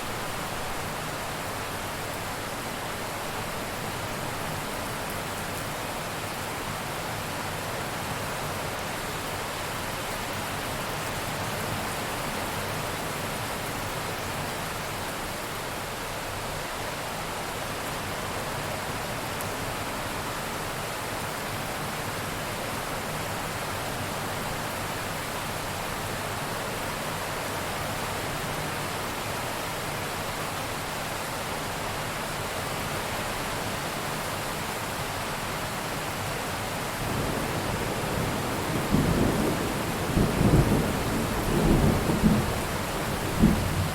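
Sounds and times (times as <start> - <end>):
heavy rain: 0.0 - 43.9.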